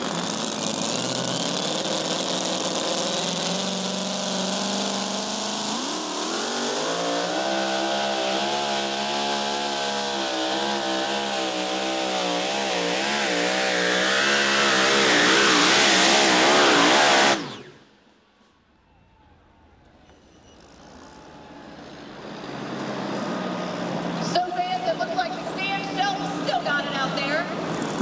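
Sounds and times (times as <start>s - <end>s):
truck engine revving at high revs: 0.0s - 18.0s, 22.0s - 28.0s.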